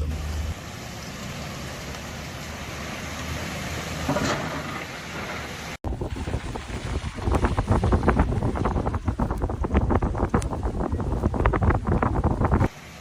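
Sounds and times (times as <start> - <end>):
traffic hiss on wet street: 0.0 - 9.5, 12.4 - 13.0
outdoor noise: 0.0 - 13.0.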